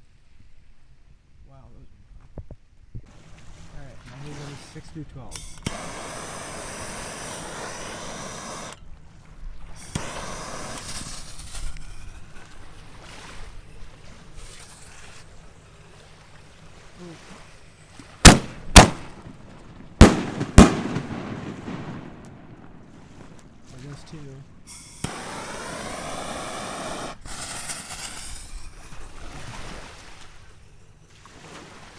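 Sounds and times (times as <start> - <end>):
soft hissing: 3.6 - 31.2
loud firework bangs: 5.4 - 8.8, 9.8 - 11.4, 18.2 - 28.7.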